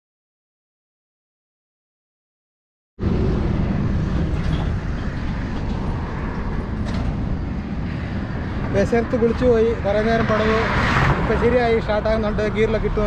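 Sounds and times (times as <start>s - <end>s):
wind rumble on microphone: 3.0s - 13.0s.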